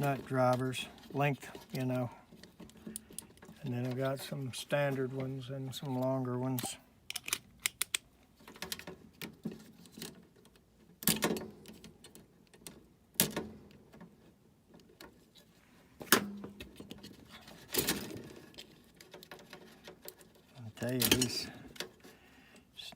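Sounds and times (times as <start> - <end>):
metal hand tools clinking: 20.9 - 21.6.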